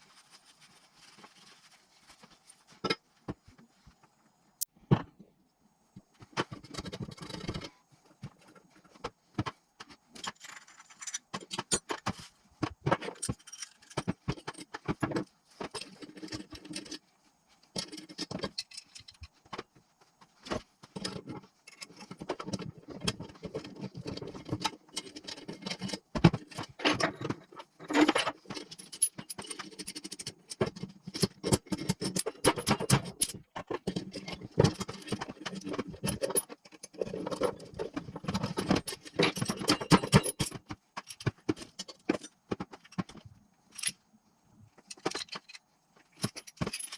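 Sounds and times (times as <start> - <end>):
metal parts and tools clinking: 10.2 - 17.1, 17.8 - 19.4, 21.0 - 44.0, 44.8 - 46.9.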